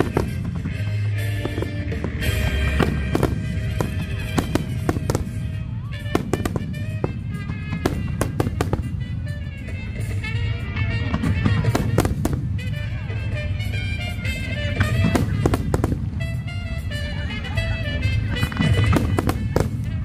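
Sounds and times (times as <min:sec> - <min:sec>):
fireworks bursting: 0:00.0 - 0:20.0
music playing: 0:00.0 - 0:20.0.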